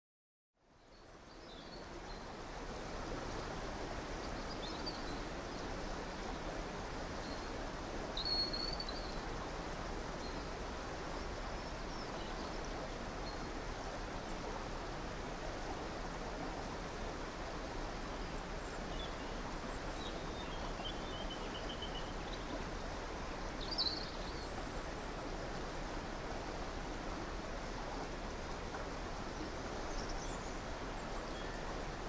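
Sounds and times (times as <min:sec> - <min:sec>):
river water flowing: 0:00.6 - 0:32.0.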